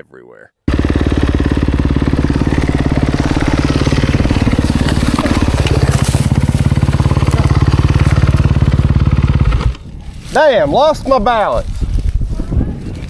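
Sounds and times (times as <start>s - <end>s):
dirt bike engine running at low revs: 0.7s - 10.4s.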